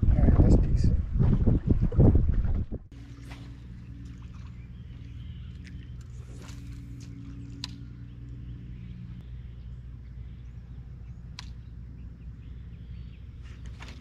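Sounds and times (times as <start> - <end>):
boat motor humming: 2.9 - 14.0.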